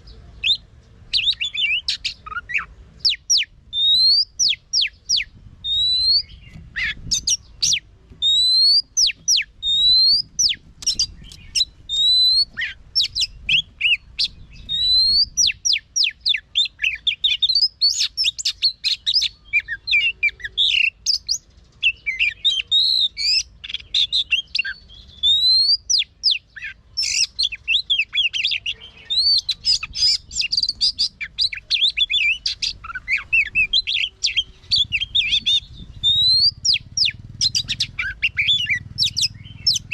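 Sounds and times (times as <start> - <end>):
songbird whistling and chattering: 0.0 - 39.9
faint low rumble: 28.7 - 39.9.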